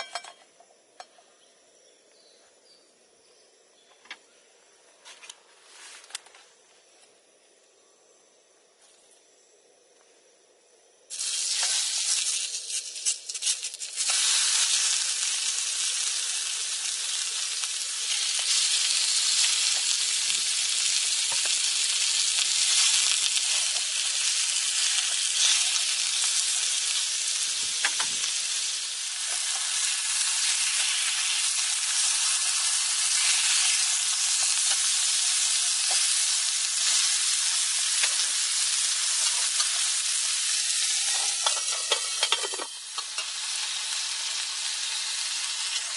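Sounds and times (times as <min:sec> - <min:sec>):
food sizzling in a pan: 0:11.1 - 0:45.9.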